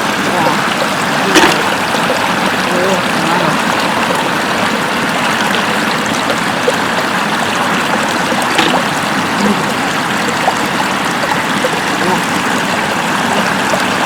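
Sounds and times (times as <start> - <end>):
floodwater flowing over road: 0.0 - 14.0.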